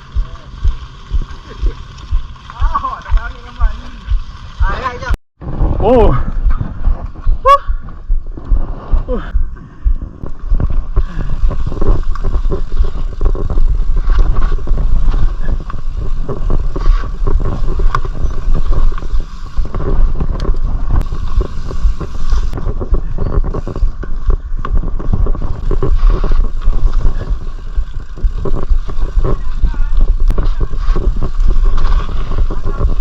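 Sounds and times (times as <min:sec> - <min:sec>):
bike rattling and clicking: 0:00.0 - 0:05.2, 0:06.1 - 0:33.0
wind rumble on microphone: 0:00.0 - 0:33.0.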